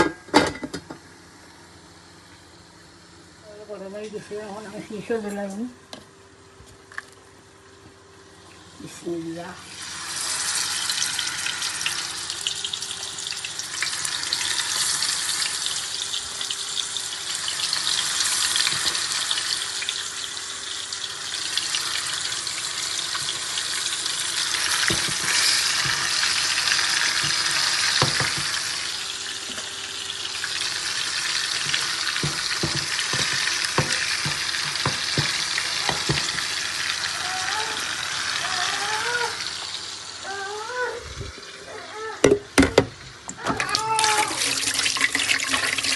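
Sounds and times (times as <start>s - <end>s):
chicken sizzling in hot oil: 8.6s - 40.3s, 43.8s - 45.9s
utensil knocking against pan: 27.2s - 28.6s, 31.6s - 36.5s.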